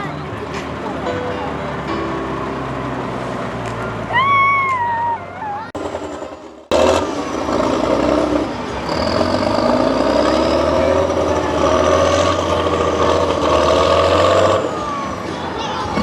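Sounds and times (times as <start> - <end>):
truck engine running under load: 0.0 - 16.0.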